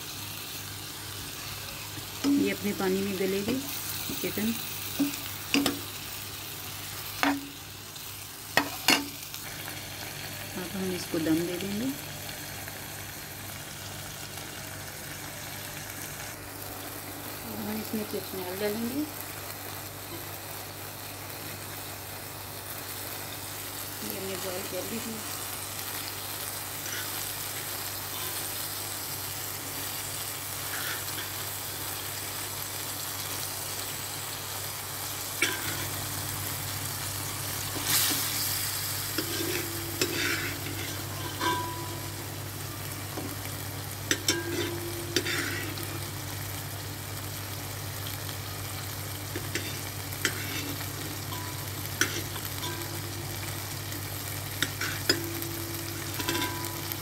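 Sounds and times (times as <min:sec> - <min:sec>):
meat sizzling in a pot: 0:00.0 - 0:57.0
utensil scraping a pot: 0:44.2 - 0:45.9, 0:49.4 - 0:52.9.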